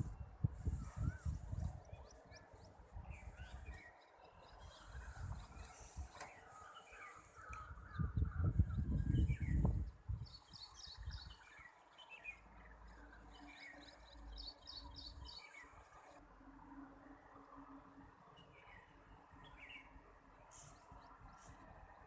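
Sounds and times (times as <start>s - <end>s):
small birds chirping: 0.0s - 16.2s.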